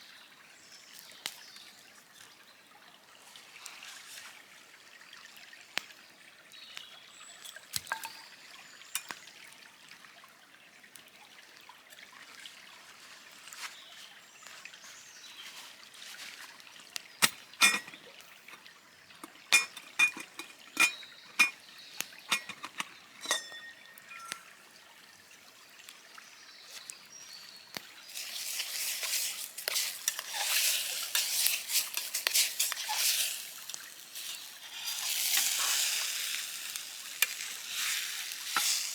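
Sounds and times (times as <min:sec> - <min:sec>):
liquid pouring and trickling: 0:07.3 - 0:38.9
sharp metallic clinks: 0:22.3 - 0:24.6
food sizzling in a hot pan: 0:28.1 - 0:38.9.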